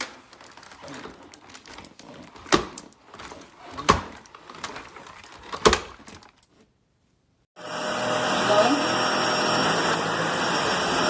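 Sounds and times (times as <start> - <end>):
vacuum cleaner running: 7.6 - 11.0.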